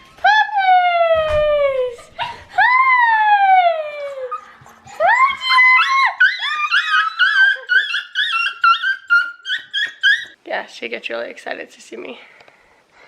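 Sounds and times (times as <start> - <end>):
dog whining: 1.7 - 10.4.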